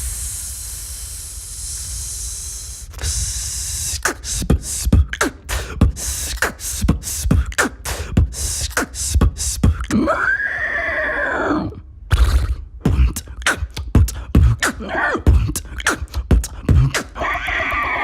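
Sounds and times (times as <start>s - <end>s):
breathy hiss: 0.0s - 9.9s
beatboxing: 0.0s - 10.4s, 12.1s - 18.0s.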